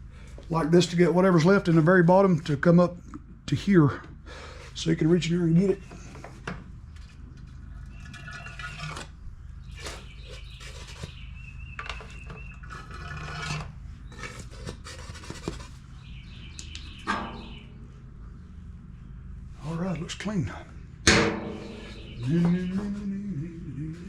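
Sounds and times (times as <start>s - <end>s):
steady low hum: 0.0s - 24.0s
rubbing and scraping: 7.0s - 16.1s.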